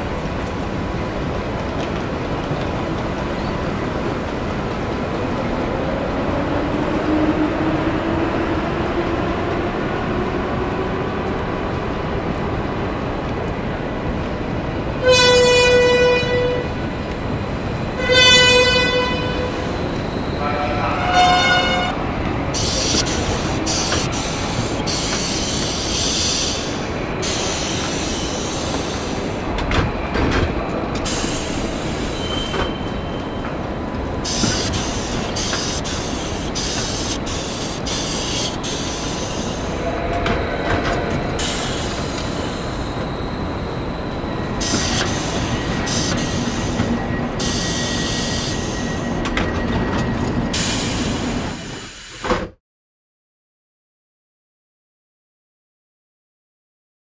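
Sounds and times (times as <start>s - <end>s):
train rumbling on rails: 0.0s - 52.6s
high wheel squeal: 31.1s - 33.5s, 34.3s - 52.0s.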